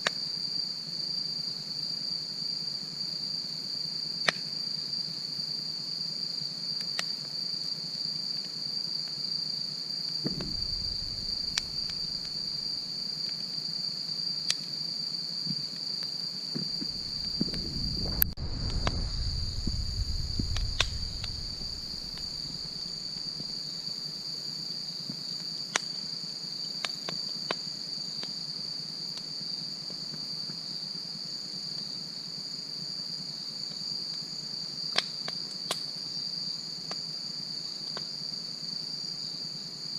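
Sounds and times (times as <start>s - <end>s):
insect chirring: 9.0s - 28.5s
low rumble: 10.3s - 12.8s, 16.7s - 23.5s
wood fire crackling: 10.3s - 13.0s, 16.6s - 23.7s.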